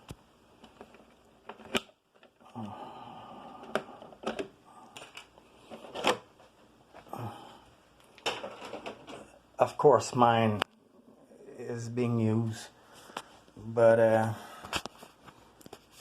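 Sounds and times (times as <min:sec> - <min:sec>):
plastic handling clicks and knocks: 0:03.6 - 0:07.1, 0:08.1 - 0:09.3.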